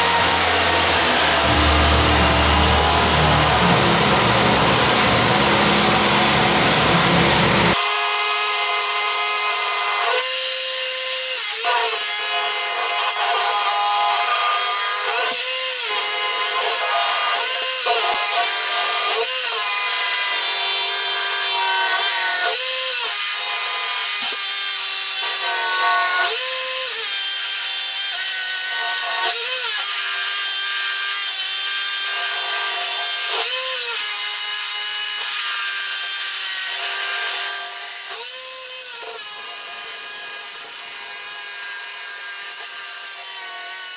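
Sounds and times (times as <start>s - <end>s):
rotary hammer drill boring concrete: 7.7s - 43.9s.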